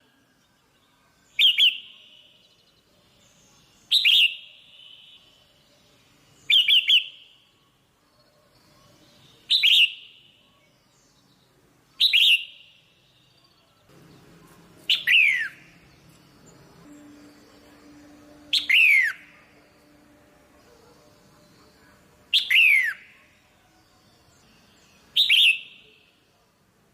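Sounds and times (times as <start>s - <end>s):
bird giving sharp calls: 14.9s - 15.7s.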